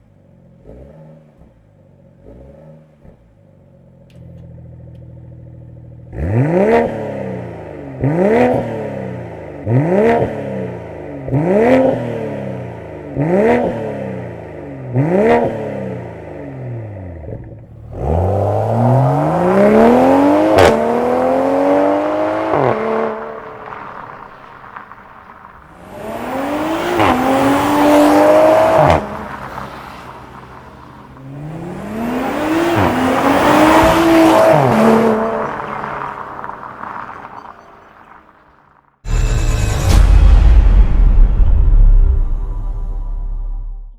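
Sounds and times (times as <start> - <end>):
car engine accelerating hard: 0.2 - 37.8
exhaust crack at gear change: 3.9 - 6.4, 22.4 - 43.9.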